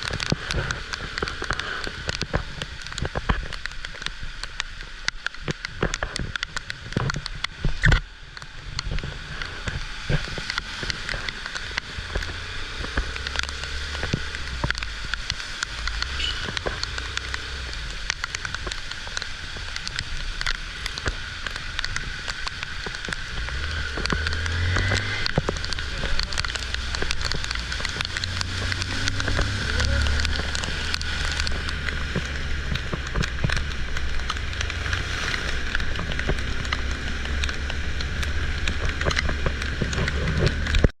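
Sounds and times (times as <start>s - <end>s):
heavy rain: 0.0s - 40.9s
low rumble: 19.6s - 40.9s.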